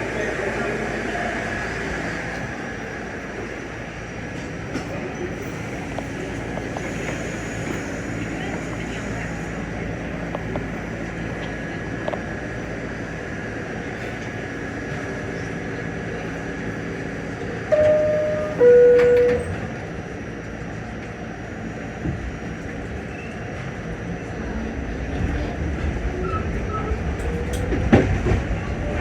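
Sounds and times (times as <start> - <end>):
subway car rumble: 0.0 - 29.0
two-note falling door chime: 17.7 - 19.6.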